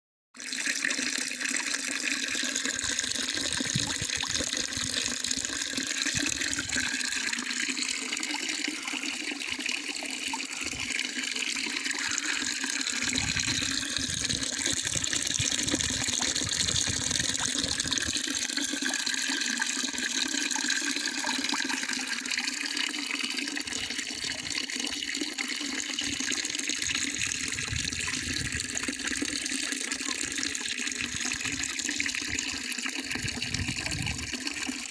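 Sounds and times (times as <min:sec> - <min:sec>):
running water rushing: 0:02.2 - 0:09.2, 0:10.5 - 0:19.2, 0:25.8 - 0:34.9.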